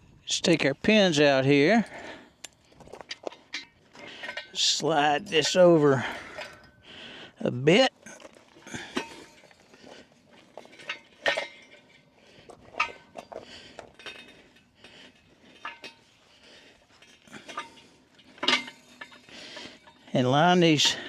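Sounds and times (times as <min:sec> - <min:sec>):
metal parts clinking: 0:10.4 - 0:16.2, 0:16.8 - 0:21.0.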